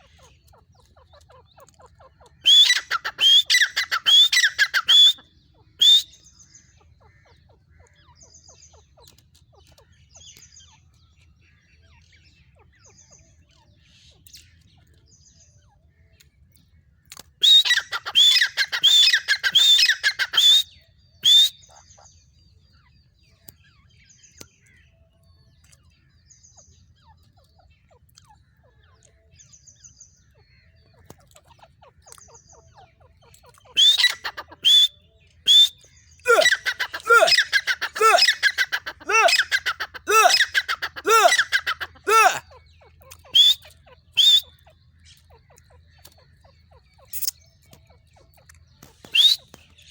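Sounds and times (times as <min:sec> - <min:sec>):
francolin calling: 0:02.4 - 0:06.2, 0:17.4 - 0:21.5, 0:33.7 - 0:34.9, 0:36.3 - 0:42.4, 0:43.3 - 0:44.6.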